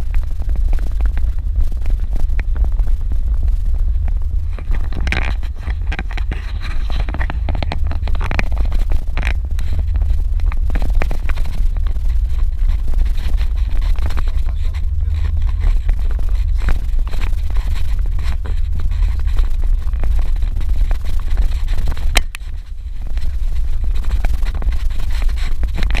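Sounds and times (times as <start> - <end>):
vehicle rumbling on dirt road: 0.0 - 26.0
clattering and knocking: 4.5 - 26.0.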